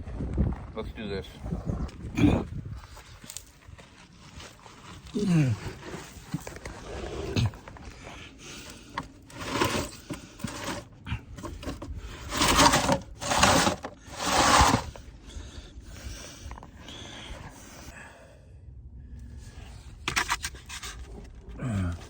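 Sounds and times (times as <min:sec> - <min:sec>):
body scraping and shuffling on ground: 0:00.6 - 0:15.0
hard breathing: 0:04.2 - 0:20.0.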